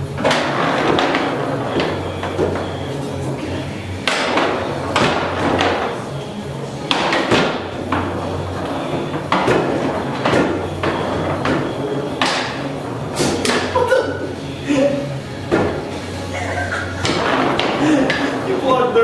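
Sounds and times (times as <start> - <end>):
foosball ball being struck: 0.0 - 18.6
foosball rods knocking: 0.0 - 19.0.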